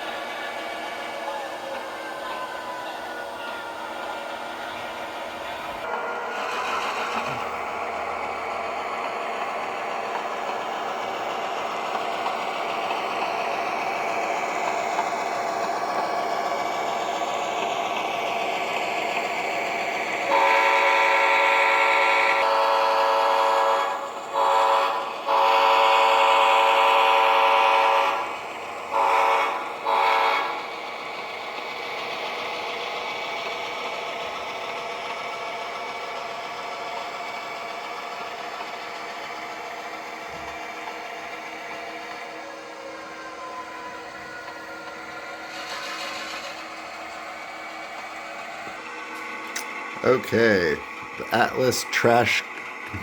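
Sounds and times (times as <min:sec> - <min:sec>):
model locomotive engine sound: 0:00.0 - 0:53.0
locomotive horn blasts: 0:20.3 - 0:21.8, 0:22.4 - 0:28.2, 0:28.9 - 0:30.6.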